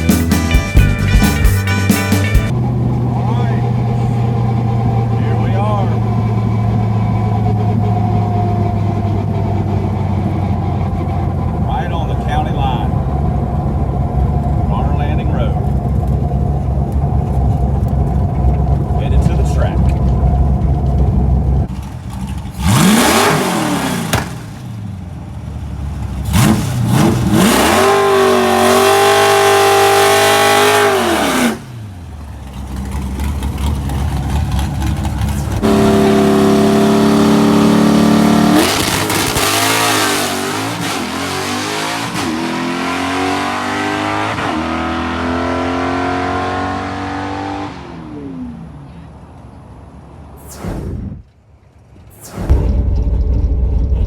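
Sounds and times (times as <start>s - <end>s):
car engine revving: 0.0s - 49.0s
car accelerating hard: 2.5s - 49.0s.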